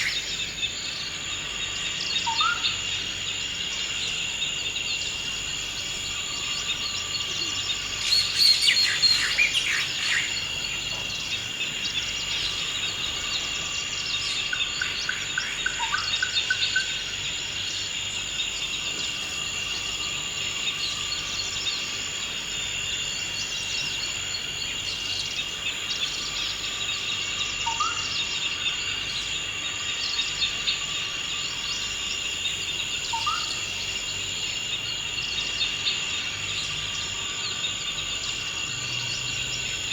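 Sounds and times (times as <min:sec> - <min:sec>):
bird calls: 0:00.0 - 0:00.9, 0:03.9 - 0:17.2
high-pitched insect drone: 0:00.0 - 0:39.9.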